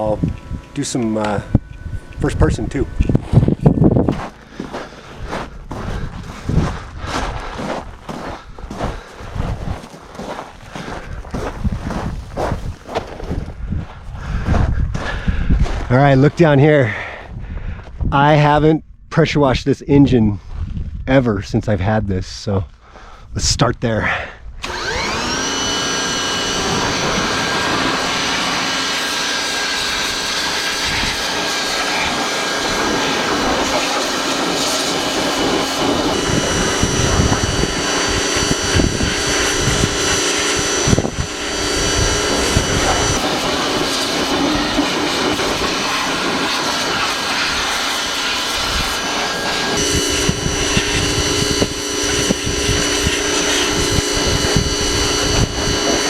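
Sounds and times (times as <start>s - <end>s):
machine whine: 0.0s - 13.0s, 24.6s - 56.0s
pressure washer spraying water: 24.6s - 56.0s.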